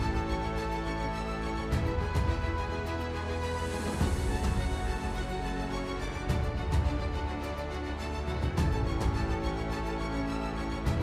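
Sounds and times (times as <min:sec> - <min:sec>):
music with strong bass: 0:00.0 - 0:11.0.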